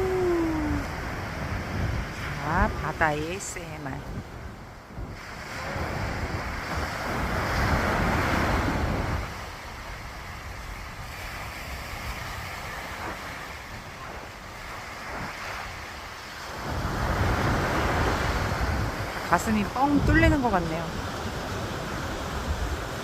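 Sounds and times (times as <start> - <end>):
sea waves breaking: 0.0 - 23.0
wind buffeting microphone: 0.0 - 23.0.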